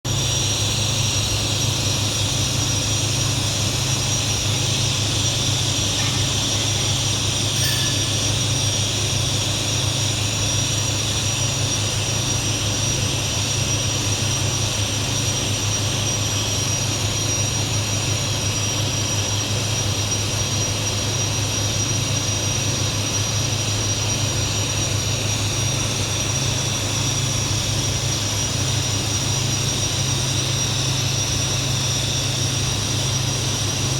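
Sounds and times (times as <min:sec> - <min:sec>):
welding arc buzzing: 0:00.2 - 0:10.1.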